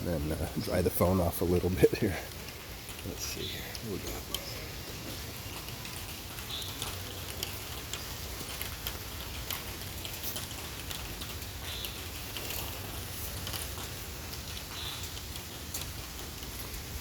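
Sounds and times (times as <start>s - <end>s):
raindrops tapping near microphone: 0.0s - 17.0s
steady rain: 0.0s - 17.0s.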